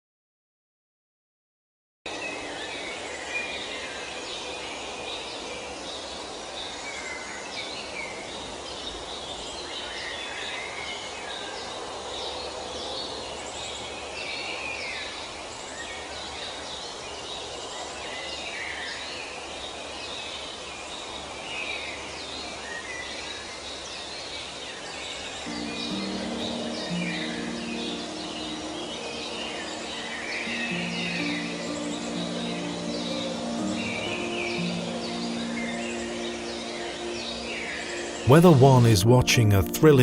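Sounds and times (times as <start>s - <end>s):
outdoor background hiss: 2.1s - 40.0s
birds chirping and singing: 25.4s - 38.9s.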